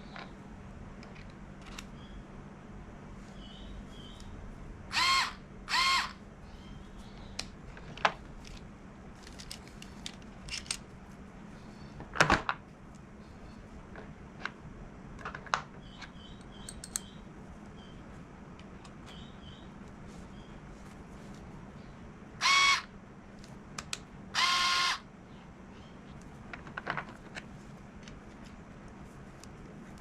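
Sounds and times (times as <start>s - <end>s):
cordless screwdriver motor whirring: 4.9s - 6.2s, 22.4s - 22.9s, 24.4s - 25.0s.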